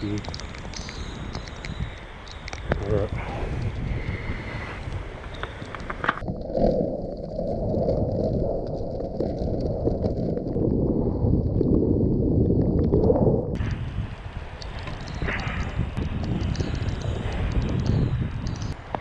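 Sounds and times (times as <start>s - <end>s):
rain: 0.0s - 6.4s, 13.6s - 19.0s
low rumble: 0.0s - 19.0s
wind noise on microphone: 0.0s - 19.0s.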